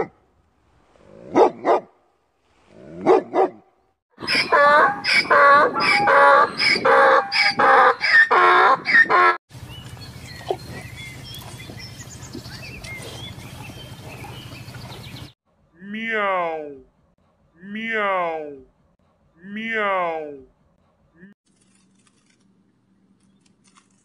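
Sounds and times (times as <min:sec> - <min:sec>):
donkey braying: 0:04.2 - 0:09.4.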